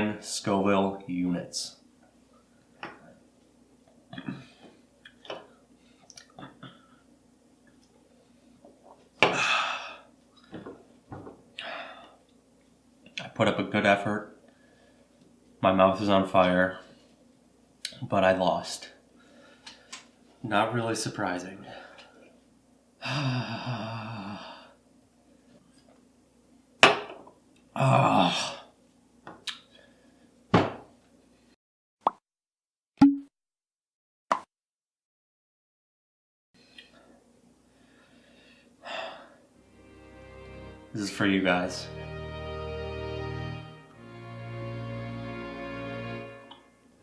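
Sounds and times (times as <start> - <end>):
man groaning: 9.3 - 10.0, 23.0 - 24.5, 27.8 - 28.7.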